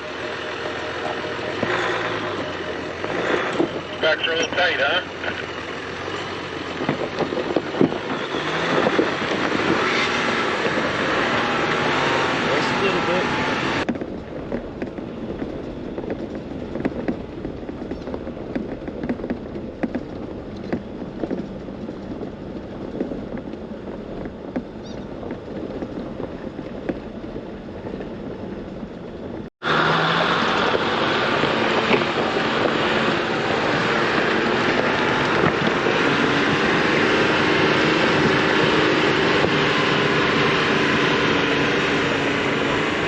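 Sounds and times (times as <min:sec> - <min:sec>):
engine running: 0:00.0 - 0:43.0
off-road vehicle rumble: 0:00.0 - 0:43.0
wind noise: 0:00.0 - 0:43.0
sharp knocks and rattles: 0:13.8 - 0:29.5.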